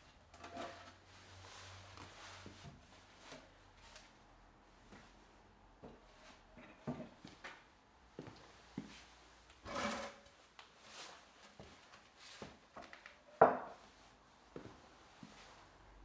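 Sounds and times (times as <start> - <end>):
tool scrapes: 9.6 - 10.3.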